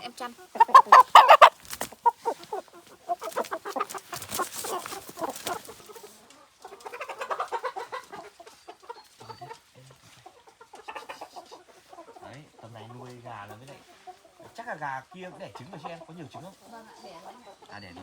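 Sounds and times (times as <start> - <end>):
hens clucking and cackling: 0.0 - 18.0.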